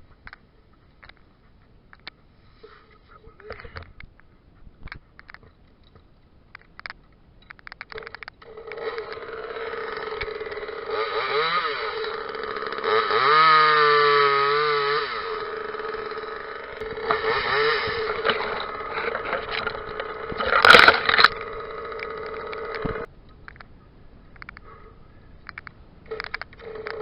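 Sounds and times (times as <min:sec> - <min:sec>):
chainsaw idling and revving: 0:08.0 - 0:23.1, 0:26.1 - 0:27.0.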